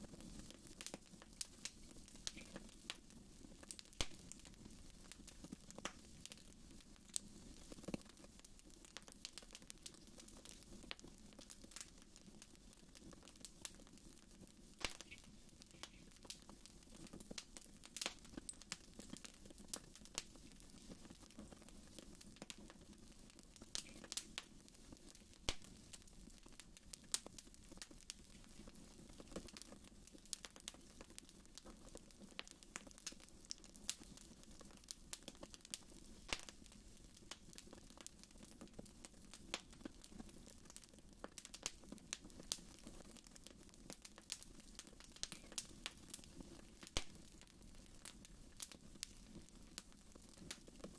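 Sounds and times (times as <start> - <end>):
wood fire crackling and popping: 0.0 - 50.9.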